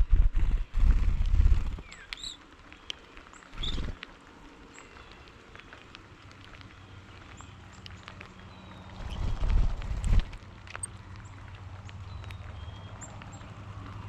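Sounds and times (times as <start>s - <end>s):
low rumble on microphone: 0.0s - 2.1s, 6.7s - 10.6s
bird chirps and calls: 1.4s - 4.0s.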